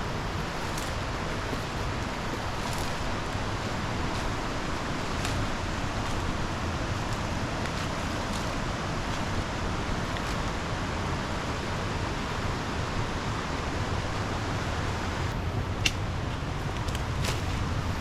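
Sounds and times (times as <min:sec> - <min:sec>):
river water rushing: 0:00.0 - 0:18.0
sharp snap: 0:15.8 - 0:16.0.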